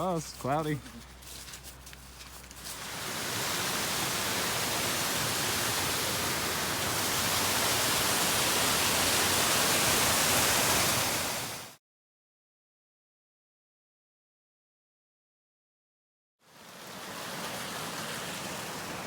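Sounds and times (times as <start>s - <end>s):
water rushing: 0.0s - 11.8s, 16.5s - 19.0s.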